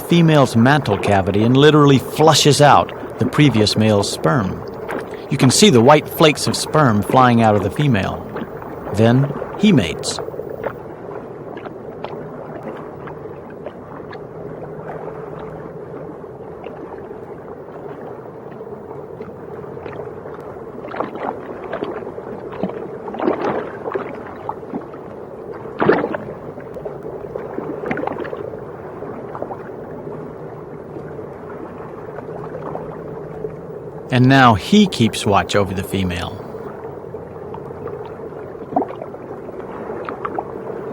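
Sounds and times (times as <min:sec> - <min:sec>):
low underwater hum: 0:00.0 - 0:20.3.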